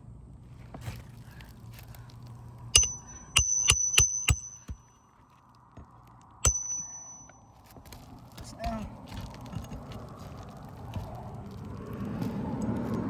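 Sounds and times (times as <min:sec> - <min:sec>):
hammer striking steel: 0:02.8 - 0:04.9, 0:06.4 - 0:07.4
high metallic ring: 0:02.8 - 0:05.0, 0:06.4 - 0:07.7.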